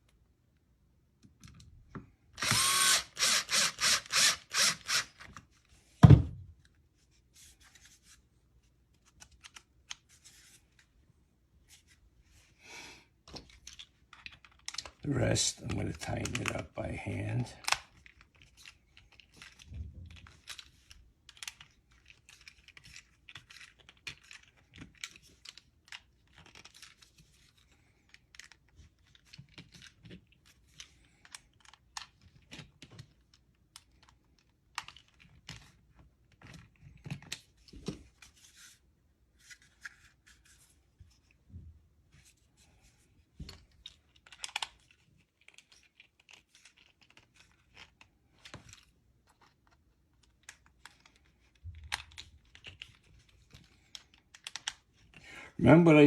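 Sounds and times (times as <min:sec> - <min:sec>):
screwdriver clicking and scraping: 0:02.4 - 0:05.4.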